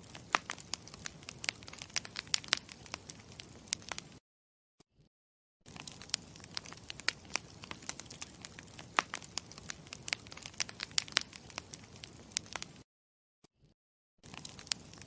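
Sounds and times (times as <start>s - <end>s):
campfire crackling: 0.0s - 4.2s, 5.7s - 12.8s, 14.3s - 15.0s.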